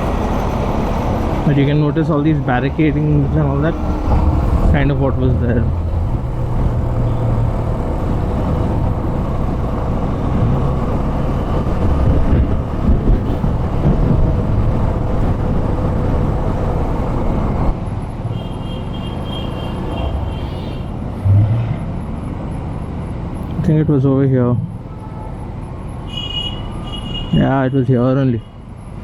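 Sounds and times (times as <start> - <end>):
wind rush on microphone: 2.4 - 17.8.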